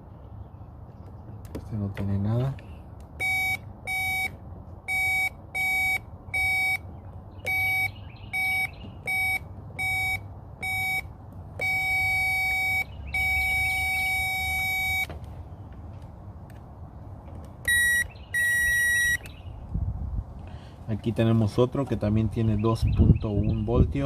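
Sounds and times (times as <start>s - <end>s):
tester long beeps: 3.2s - 6.8s, 7.4s - 15.1s, 17.7s - 19.3s
tester short beeps: 3.2s - 6.8s, 7.4s - 15.1s, 17.6s - 19.3s.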